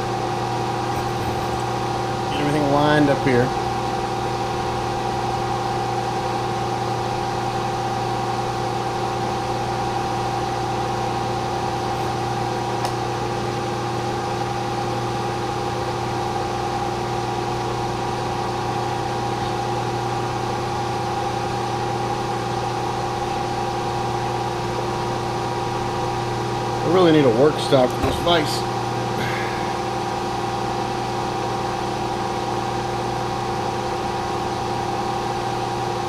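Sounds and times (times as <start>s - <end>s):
milling machine humming: 0.0s - 36.0s.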